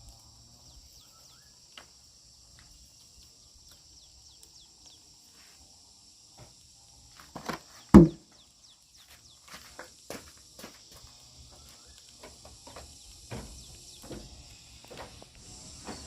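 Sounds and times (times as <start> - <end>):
high insect drone: 0.0 - 16.0
knocks: 7.9 - 8.2.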